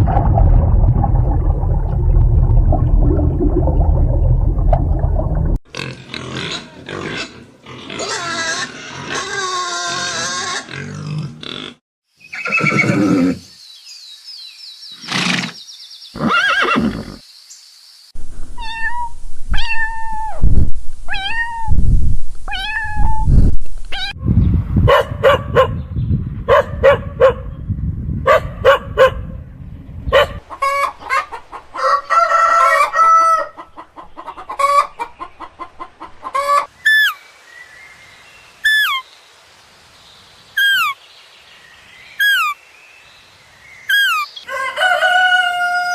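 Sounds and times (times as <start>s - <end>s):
animal calls: 40.6s - 41.0s, 43.9s - 44.4s.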